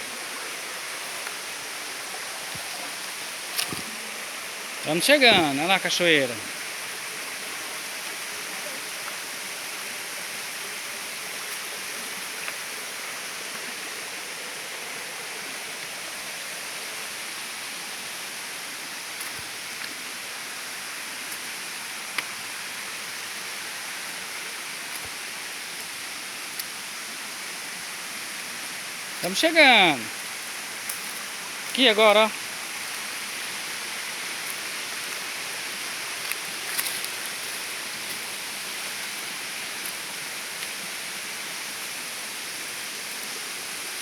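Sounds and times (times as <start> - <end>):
waterfall rushing: 0.0 - 44.0.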